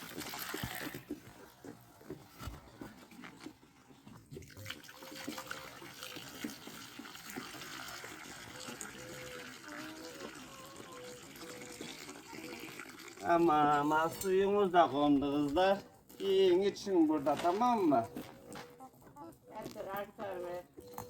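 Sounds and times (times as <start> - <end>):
water trickling into drinker: 4.3 - 16.4.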